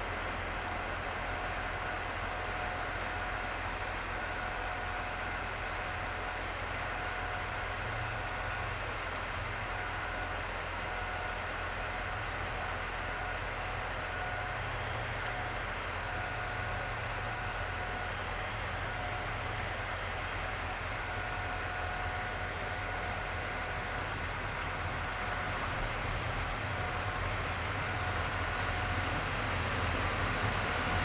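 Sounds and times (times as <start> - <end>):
train hum and rumble: 0.0 - 31.0.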